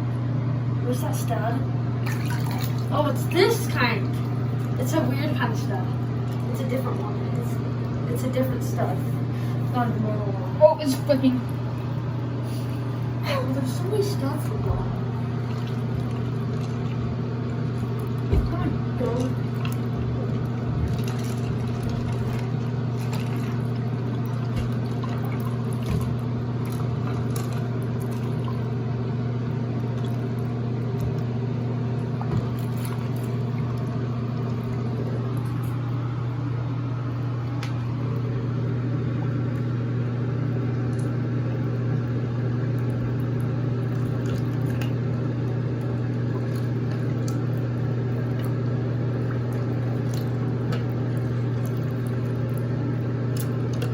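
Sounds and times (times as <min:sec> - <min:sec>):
low machine hum: 0:00.0 - 0:53.9
light water sounds: 0:02.0 - 0:09.8, 0:10.8 - 0:28.8, 0:29.6 - 0:38.3, 0:40.5 - 0:53.9.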